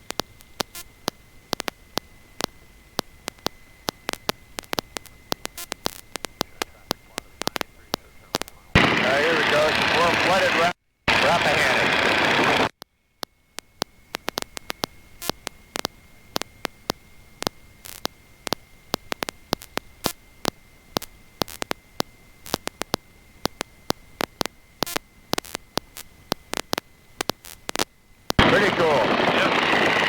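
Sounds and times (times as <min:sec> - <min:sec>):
faint hiss: 0:00.0 - 0:11.8
intercom static clicks and pops: 0:00.0 - 0:30.0
thin high whine: 0:00.5 - 0:12.7, 0:27.3 - 0:30.0.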